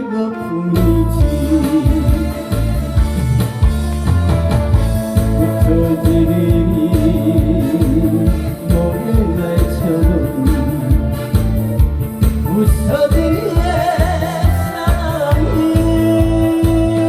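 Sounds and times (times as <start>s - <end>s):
instrumental backing track through speakers: 0.0s - 17.0s.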